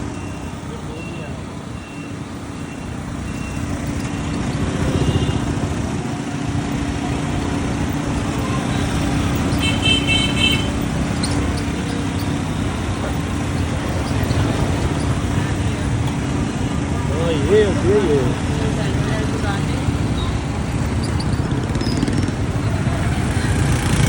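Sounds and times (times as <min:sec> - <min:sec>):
street traffic: 0:00.0 - 0:24.0
motorcycle engine running: 0:02.3 - 0:24.0
vehicle horn beeps: 0:04.9 - 0:05.6, 0:09.5 - 0:10.8.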